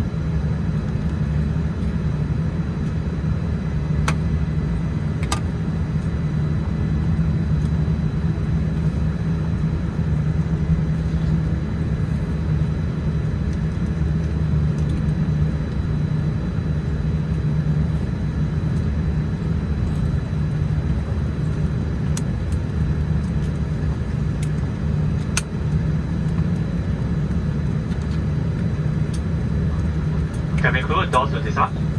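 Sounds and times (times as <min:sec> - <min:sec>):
aircraft cabin hum: 0:00.0 - 0:31.9
faint high whine: 0:30.4 - 0:31.9.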